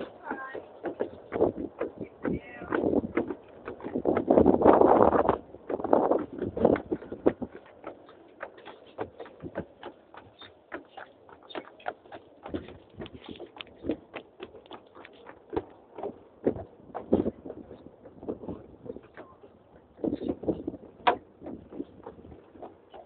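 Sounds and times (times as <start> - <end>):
horse hooves clip-clopping: 0.0 - 23.0.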